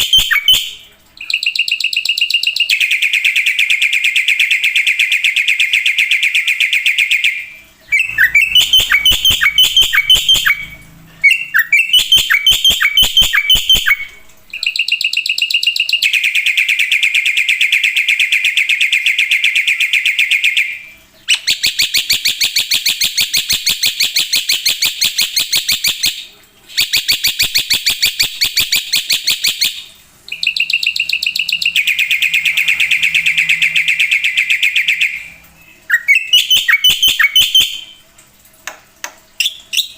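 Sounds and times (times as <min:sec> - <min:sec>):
myna singing rattling trills: 0:07.8 - 0:14.7, 0:30.3 - 0:38.0.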